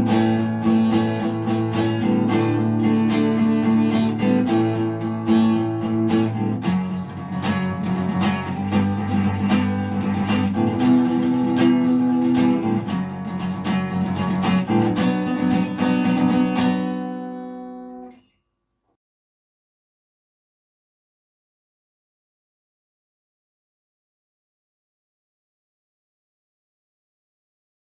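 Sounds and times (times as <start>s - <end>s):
acoustic guitar strumming: 0.0s - 18.2s.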